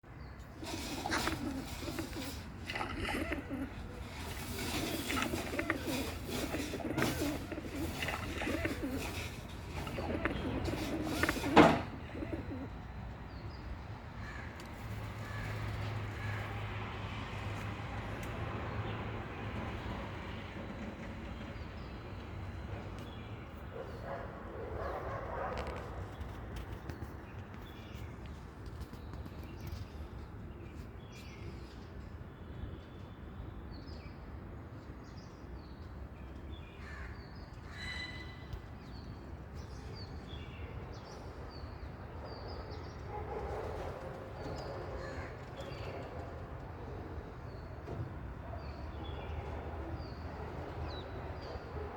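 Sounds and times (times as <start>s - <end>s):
birds calling: 0.1s - 16.6s, 35.8s - 51.9s.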